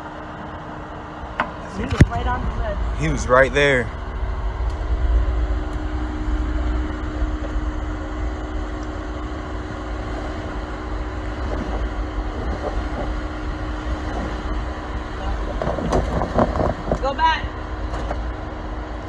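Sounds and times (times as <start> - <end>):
vehicle engine running at low revs: 0.0 - 19.0.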